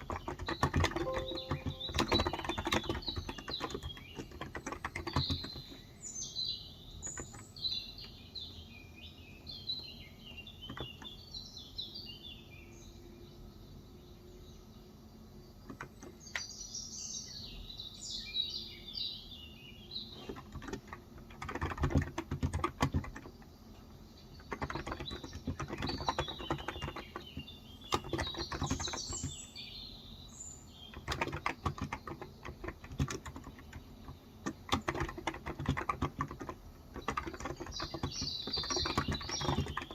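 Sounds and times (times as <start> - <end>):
keyboard typing: 0.0 - 5.8, 7.1 - 7.4, 20.2 - 23.4, 24.4 - 29.4, 30.9 - 39.9
birds chirping and singing: 0.1 - 4.3, 37.0 - 39.9.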